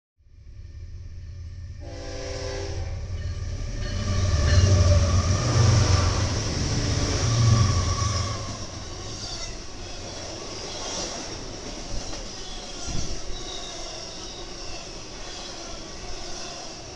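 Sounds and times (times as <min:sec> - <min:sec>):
train rumbling past: 0:00.2 - 0:16.9
train horn blast: 0:01.8 - 0:06.4.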